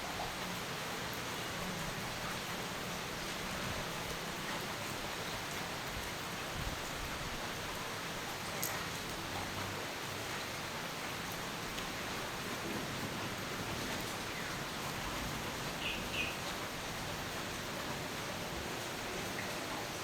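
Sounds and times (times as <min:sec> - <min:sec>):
steady rain hiss: 0:00.0 - 0:20.0
bird chirps: 0:15.8 - 0:16.4.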